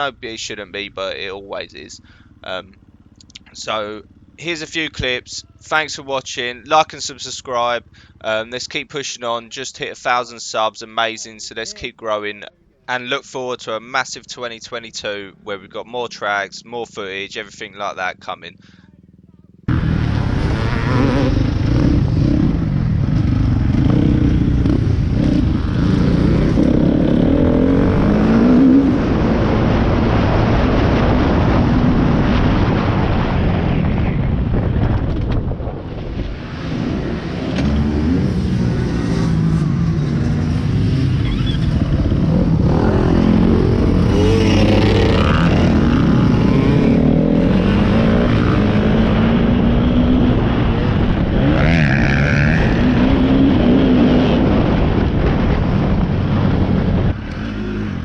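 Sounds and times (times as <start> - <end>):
motorbike engine revving: 0.0 - 8.4, 15.0 - 58.0
wind noise: 19.7 - 58.0.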